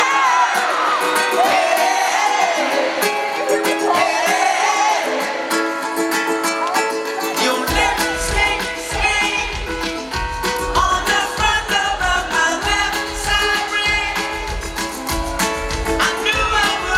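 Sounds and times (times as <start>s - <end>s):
person singing: 0.0s - 16.9s
plucked ukulele: 0.0s - 16.9s
bass and drums: 7.7s - 16.9s.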